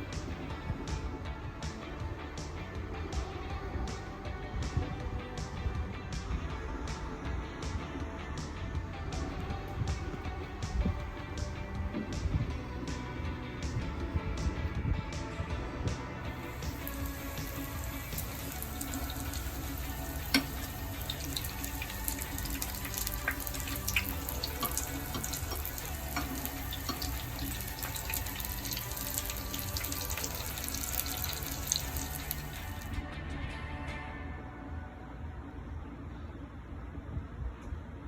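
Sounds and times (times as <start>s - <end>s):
quiet background music: 0.0s - 38.0s
oil popping and crackling: 16.4s - 33.0s
spring rolls frying in oil: 16.7s - 32.9s.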